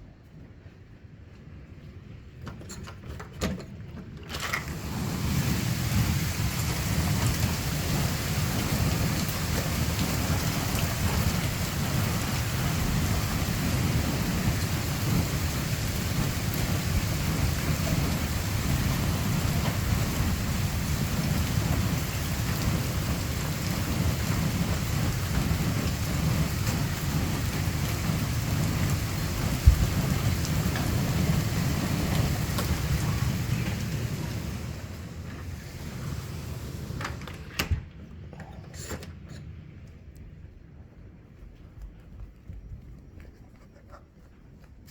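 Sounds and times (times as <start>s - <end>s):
heavy rain pouring: 4.4s - 37.5s
low rumble: 4.7s - 37.4s.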